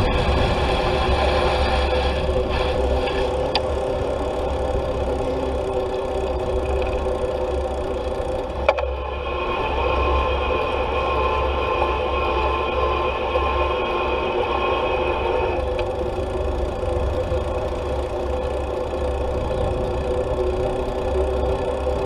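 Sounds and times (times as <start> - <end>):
wind buffeting microphone: 0.0 - 6.8
steady whirring hum: 0.0 - 22.0.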